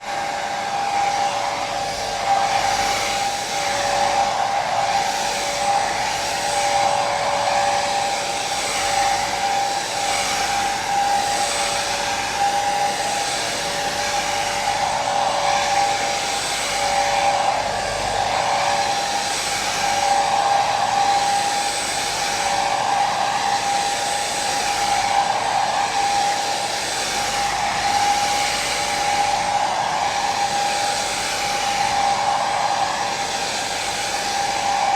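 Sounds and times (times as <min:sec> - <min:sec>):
hair dryer running: 0:00.0 - 0:34.9.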